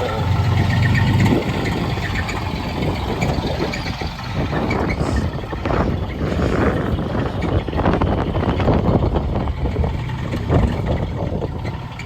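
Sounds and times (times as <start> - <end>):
car engine running roughly: 0.0 - 12.0.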